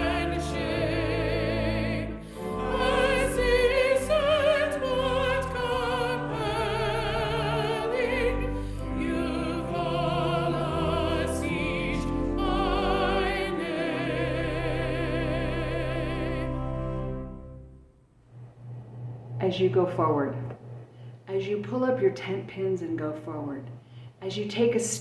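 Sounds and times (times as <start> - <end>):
classical singing voice with vibrato: 0.0 - 17.4
sustained instrumental accompaniment: 0.0 - 17.9.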